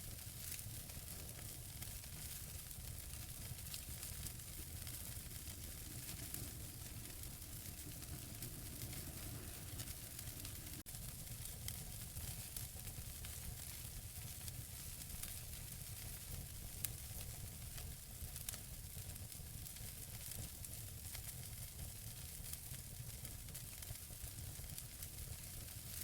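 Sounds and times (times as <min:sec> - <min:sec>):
fire hissing and rumbling: 0:00.0 - 0:26.0
logs crackling and popping: 0:00.2 - 0:19.1.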